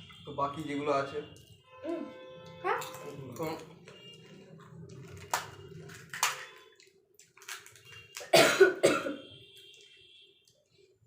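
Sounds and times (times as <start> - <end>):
crisp shells cracking: 4.9 - 8.3.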